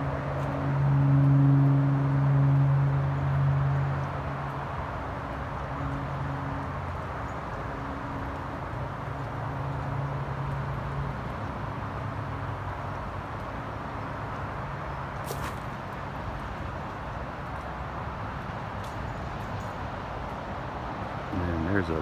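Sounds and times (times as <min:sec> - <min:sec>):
low machine hum: 0:00.0 - 0:07.9
outdoor background rush: 0:00.0 - 0:22.0.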